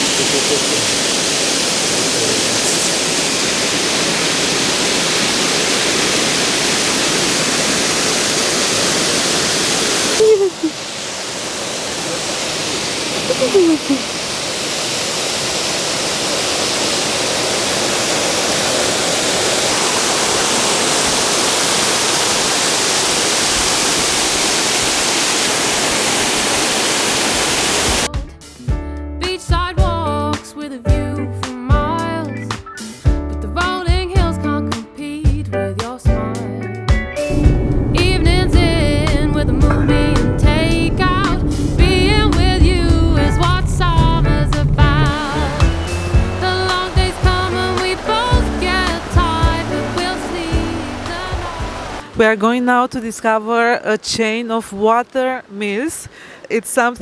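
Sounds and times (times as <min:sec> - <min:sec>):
waterfall pouring: 0:00.0 - 0:28.1, 0:37.3 - 0:52.2
music: 0:28.1 - 0:52.0.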